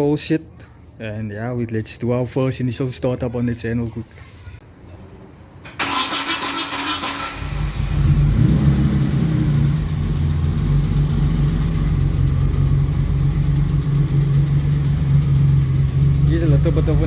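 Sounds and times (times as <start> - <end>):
car engine starter cranking: 5.7 - 8.4
car engine idling: 5.8 - 17.0.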